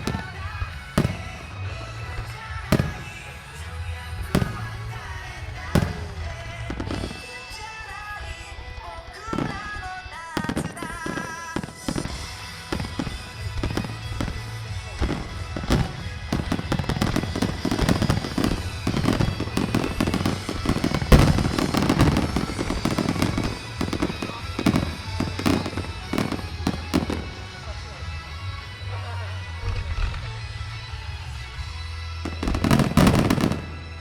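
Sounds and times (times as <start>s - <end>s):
fireworks bursting and crackling: 0.0s - 28.0s, 32.0s - 34.0s
loud firework boom: 2.7s - 3.4s, 4.3s - 5.2s, 5.8s - 7.1s, 15.7s - 27.2s.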